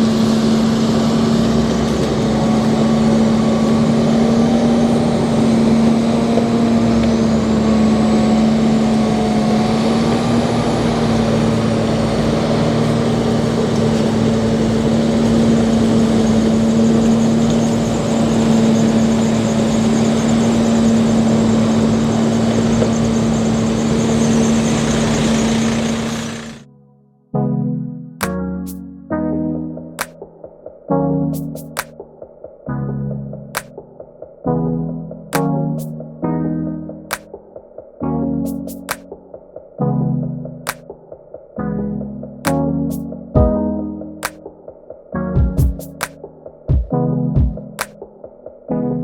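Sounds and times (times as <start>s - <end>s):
vehicle engine droning: 0.0s - 26.6s.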